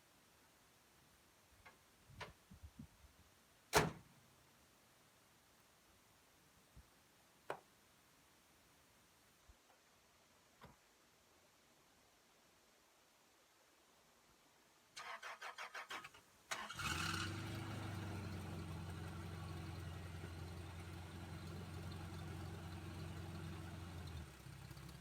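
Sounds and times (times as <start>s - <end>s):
engine starter cranking: 15.0s - 17.9s
engine revving and idling: 16.7s - 25.0s.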